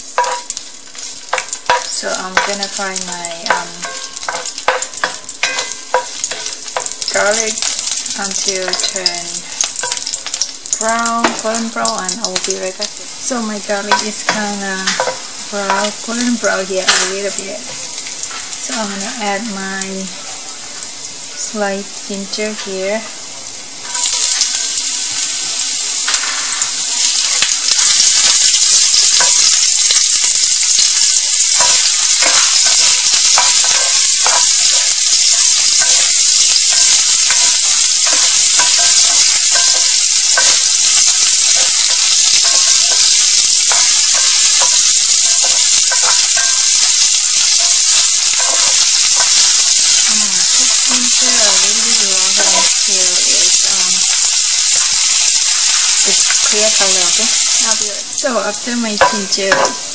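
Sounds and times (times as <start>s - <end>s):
ginger sizzling in hot oil: 0.0s - 59.9s
spoon scraping and tapping pan: 0.2s - 9.2s, 13.9s - 16.3s, 27.3s - 53.1s, 59.0s - 59.9s.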